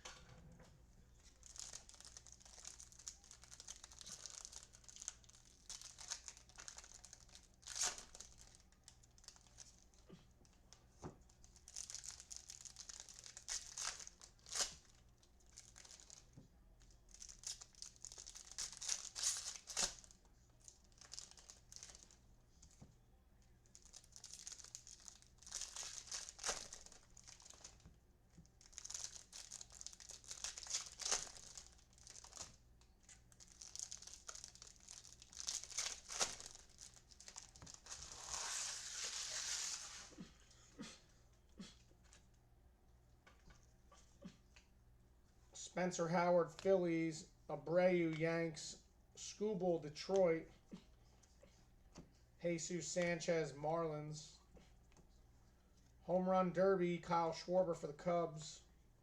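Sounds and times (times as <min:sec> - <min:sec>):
foil wrappers crinkling and tearing: 0:01.2 - 0:10.1, 0:11.4 - 0:22.2, 0:23.7 - 0:27.9, 0:28.5 - 0:40.1.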